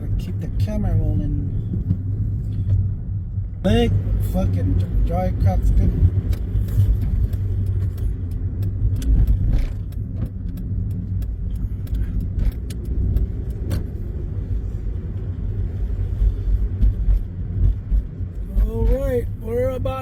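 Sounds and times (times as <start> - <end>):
car engine and road rumble: 0.0 - 20.0
small clicks and rattles: 6.2 - 14.0.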